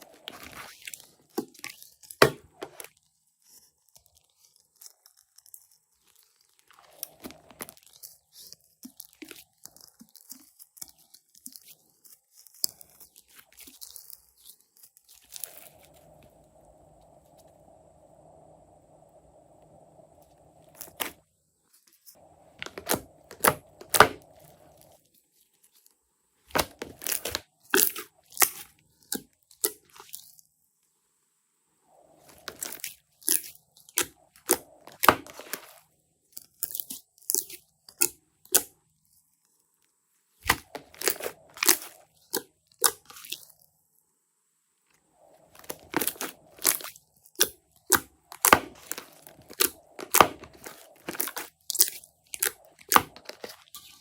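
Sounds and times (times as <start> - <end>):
slime squeezed crackling and popping: 40.5 - 43.5, 45.6 - 54.0.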